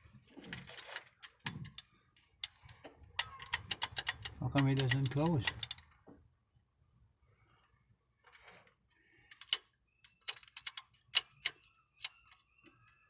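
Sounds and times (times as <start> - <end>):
metallic clicks and taps: 2.4 - 6.2.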